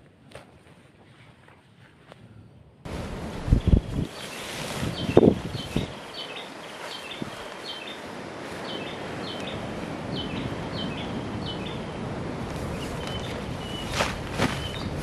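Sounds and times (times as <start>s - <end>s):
steady background hiss: 1.4s - 15.0s
bird chirping: 3.5s - 11.9s, 12.7s - 15.0s.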